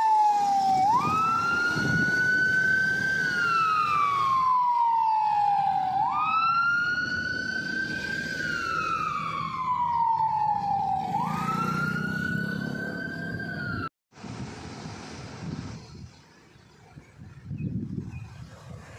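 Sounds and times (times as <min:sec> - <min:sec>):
emergency siren wailing: 0:00.0 - 0:13.9
truck engine rumble: 0:00.1 - 0:18.9.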